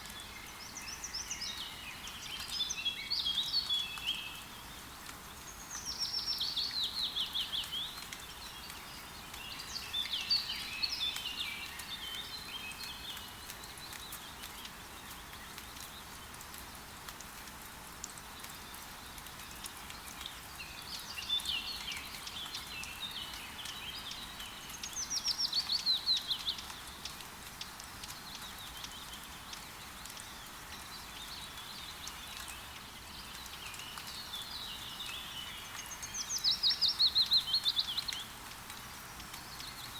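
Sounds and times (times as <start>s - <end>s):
forest birdsong: 0.0s - 16.4s, 18.4s - 39.9s
raindrop ticks: 4.9s - 39.9s.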